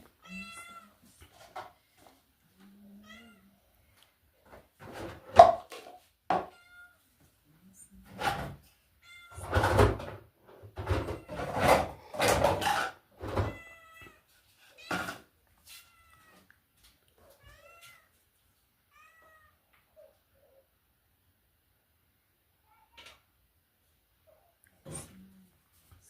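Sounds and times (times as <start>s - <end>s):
cat meowing: 0.2s - 1.0s, 3.0s - 3.5s, 6.5s - 7.0s, 9.0s - 9.6s, 13.3s - 16.5s, 17.3s - 18.1s, 18.9s - 20.2s.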